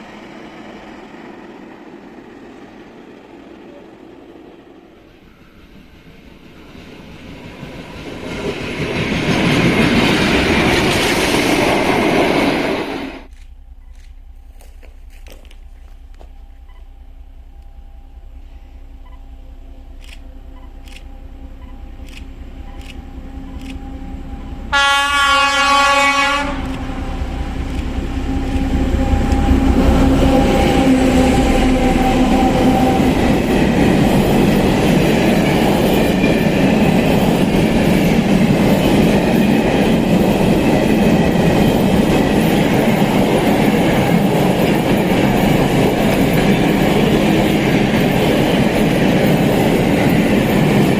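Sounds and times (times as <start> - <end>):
train wheels rumbling on rails: 0.0 - 50.9
train horn blast: 23.2 - 27.5.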